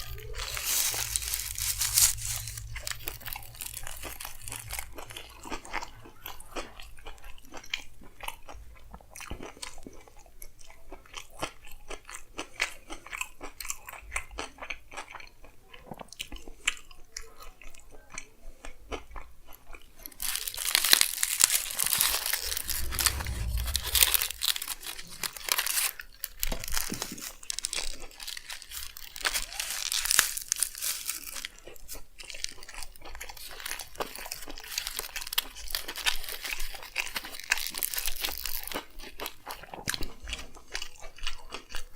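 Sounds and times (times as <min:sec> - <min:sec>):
crunchy crackling: 0:00.0 - 0:05.6, 0:20.2 - 0:25.0
chewing and biting wrap: 0:00.0 - 0:07.6, 0:18.9 - 0:24.5, 0:26.8 - 0:41.9.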